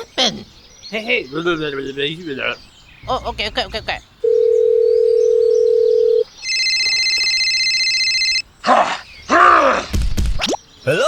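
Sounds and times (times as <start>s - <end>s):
electronic ringing tone: 4.2s - 8.4s
telephone dial tone: 4.2s - 8.4s.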